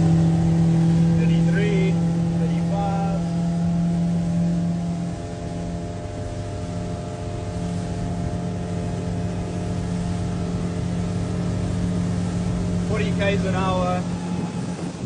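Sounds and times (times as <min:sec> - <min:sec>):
outboard boat engine: 0:00.0 - 0:15.0.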